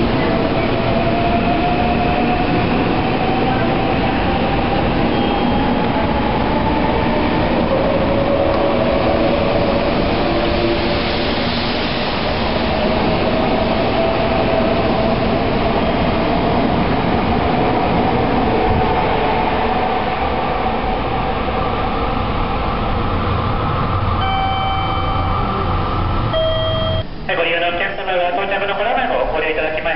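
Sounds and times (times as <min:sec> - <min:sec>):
train wheel and air rush: 0:00.0 - 0:27.3.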